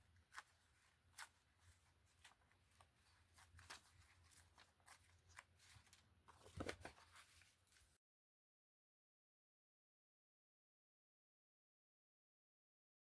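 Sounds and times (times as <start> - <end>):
paper crinkling: 0.1 - 8.0
old paper rustling and tearing: 0.2 - 7.9.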